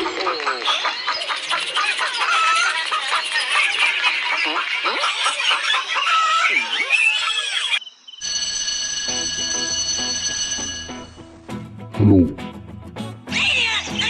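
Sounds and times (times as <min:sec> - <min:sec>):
birds chorus calling: 0:00.0 - 0:08.1.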